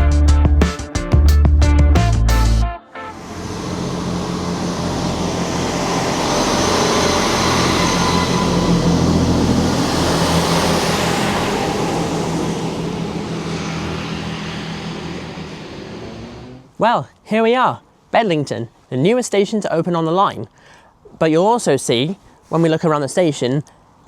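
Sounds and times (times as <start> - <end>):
train wheel and rail noise: 3.2 - 16.6
diesel train engine rumble: 3.2 - 16.8.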